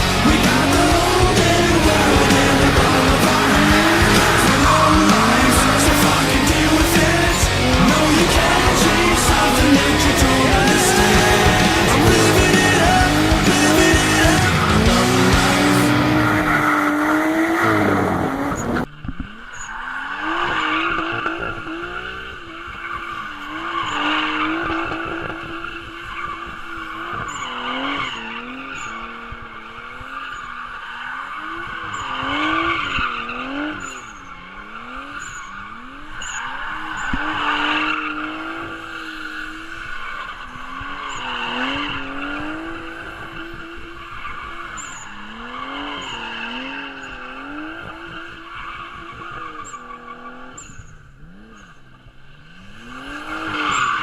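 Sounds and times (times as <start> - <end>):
tyres squealing: 0.0 - 18.9
car engine revving: 0.0 - 54.0.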